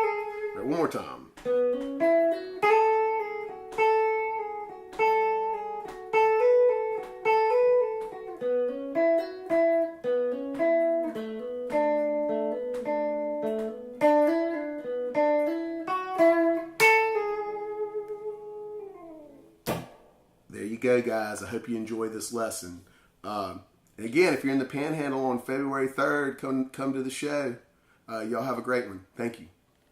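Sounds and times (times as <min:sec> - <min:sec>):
electric guitar lead: 0:00.0 - 0:19.6.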